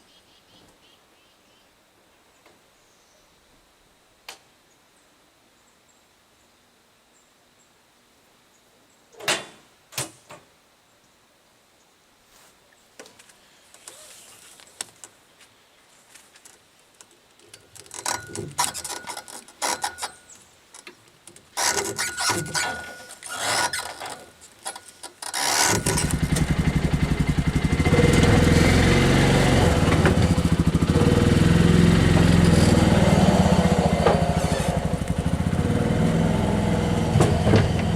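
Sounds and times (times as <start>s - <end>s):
engine running loudly: 25.8s - 37.9s.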